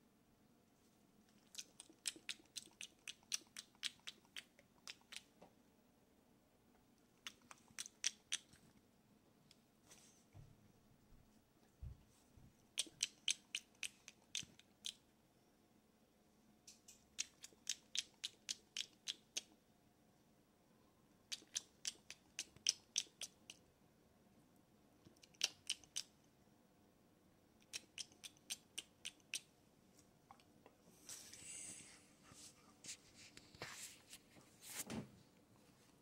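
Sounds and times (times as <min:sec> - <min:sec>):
crunching of stick treat being chewed: 0:01.3 - 0:05.3, 0:07.2 - 0:08.8, 0:12.8 - 0:15.0, 0:17.1 - 0:19.6, 0:21.3 - 0:23.6, 0:25.1 - 0:26.2, 0:27.6 - 0:29.5.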